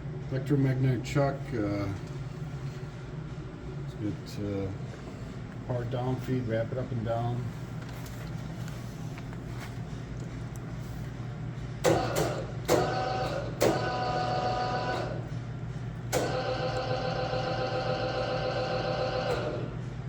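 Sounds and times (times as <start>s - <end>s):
steady low hum: 0.0s - 20.0s
feed motor clicking: 11.8s - 15.2s, 16.1s - 19.8s.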